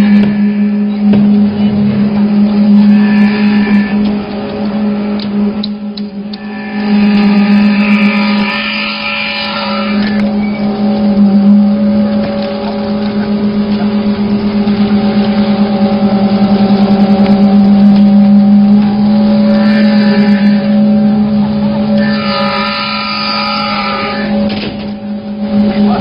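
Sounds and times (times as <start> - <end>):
concrete mixer pump engine hum: 9.8 - 26.0.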